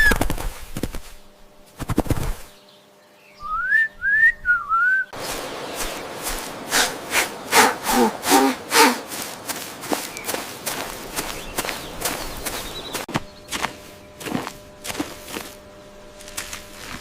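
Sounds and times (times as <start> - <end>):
rustling: 0.0 - 2.6, 5.2 - 17.0
person whistling gliding notes: 3.4 - 5.2.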